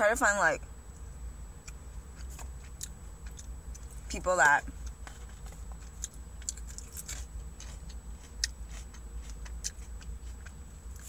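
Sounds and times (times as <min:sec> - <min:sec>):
low steady hum: 0:00.0 - 0:11.0
wet chewing clicks and smacks: 0:01.6 - 0:04.0, 0:04.8 - 0:11.0.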